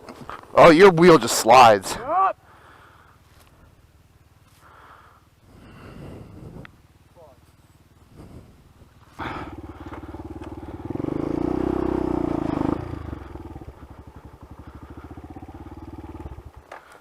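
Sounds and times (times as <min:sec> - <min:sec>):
dirt bike engine revving: 0:09.1 - 0:16.7.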